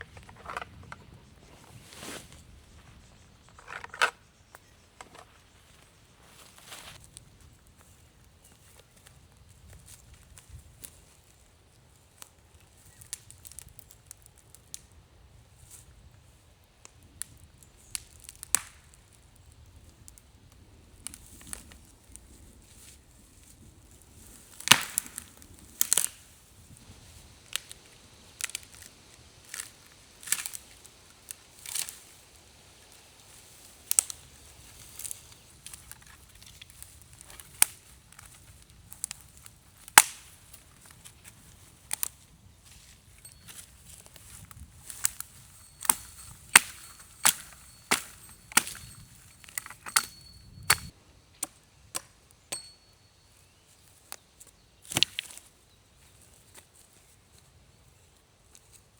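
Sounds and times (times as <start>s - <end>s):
wood being chopped: 24.6s - 26.1s, 40.0s - 40.3s, 45.8s - 52.7s, 54.8s - 55.4s.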